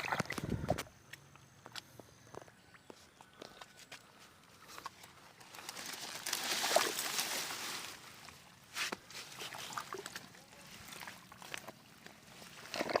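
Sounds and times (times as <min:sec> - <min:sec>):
water sloshing and rustling: 0:00.0 - 0:00.9, 0:03.2 - 0:13.0
water splash: 0:06.3 - 0:08.0.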